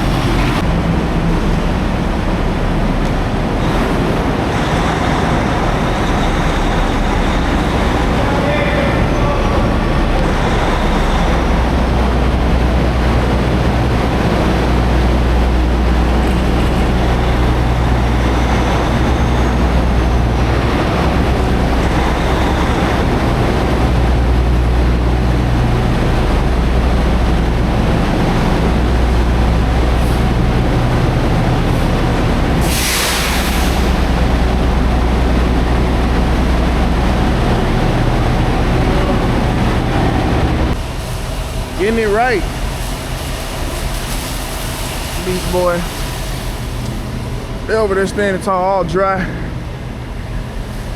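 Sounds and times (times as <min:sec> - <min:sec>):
diesel truck engine rumble: 0:00.0 - 0:50.9
road noise: 0:00.0 - 0:50.9
sharp air hiss: 0:32.6 - 0:34.3.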